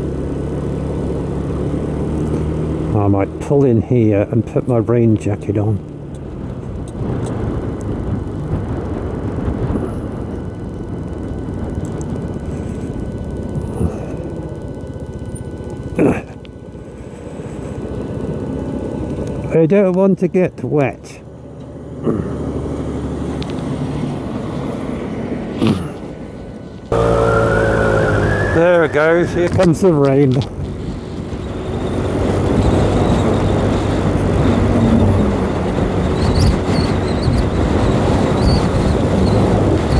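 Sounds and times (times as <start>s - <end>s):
motorcycle engine rumble: 0.0s - 39.9s
road noise: 0.0s - 39.9s
loud sweep falling in pitch: 26.9s - 29.6s
wind on microphone: 30.4s - 39.9s.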